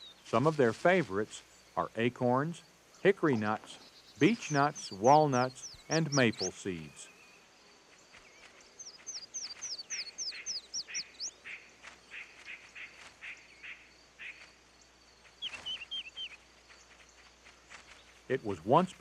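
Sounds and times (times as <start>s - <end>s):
short high chirping calls: 3.8s - 7.4s, 8.2s - 14.4s, 15.4s - 16.4s.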